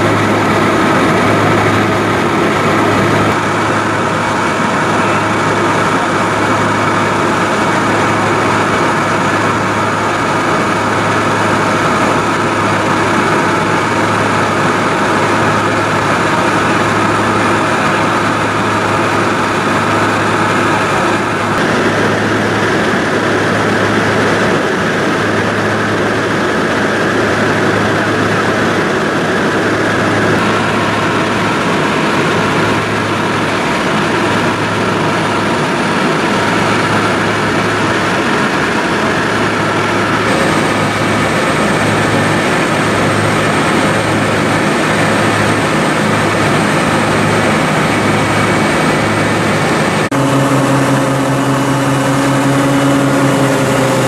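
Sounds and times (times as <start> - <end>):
vehicle engine and travel noise: 0.0 - 54.0
low hum: 36.3 - 54.0.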